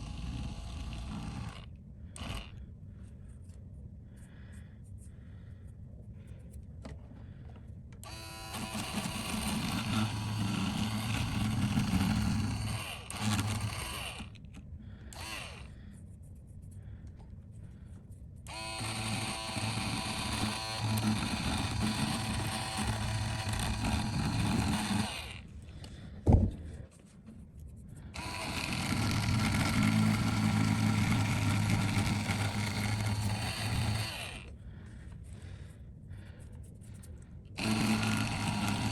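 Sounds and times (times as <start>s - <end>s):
small motor-driven tool running: 0.0s - 2.6s, 8.0s - 15.8s, 18.5s - 25.5s, 28.1s - 34.6s, 37.0s - 38.9s.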